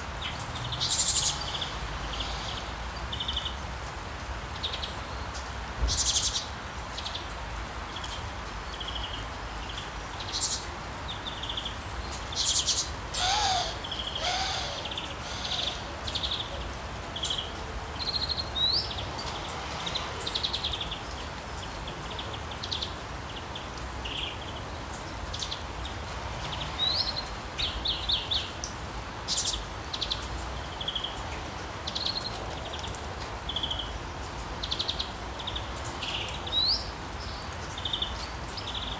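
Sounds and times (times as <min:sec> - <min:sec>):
steady background hiss: 0:10.0 - 0:17.9
lower bird calls: 0:12.5 - 0:16.6.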